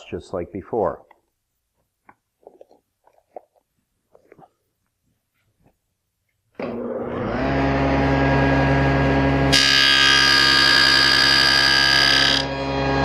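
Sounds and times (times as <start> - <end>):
table saw motor running: 6.6 - 13.0
saw blade cutting wood: 9.5 - 13.0.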